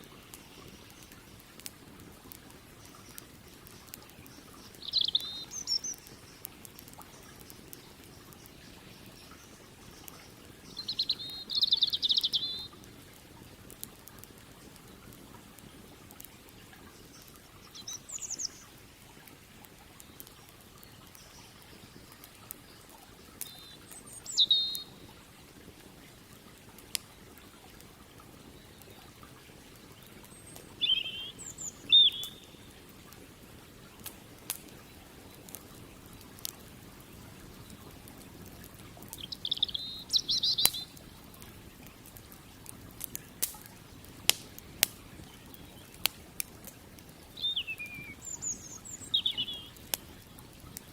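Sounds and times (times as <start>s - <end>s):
campfire crackling and popping: 0.0s - 50.9s
bird chirping: 2.9s - 6.5s, 7.1s - 12.7s, 17.0s - 18.6s, 23.4s - 25.0s, 30.3s - 32.7s, 39.2s - 41.0s, 47.4s - 49.8s.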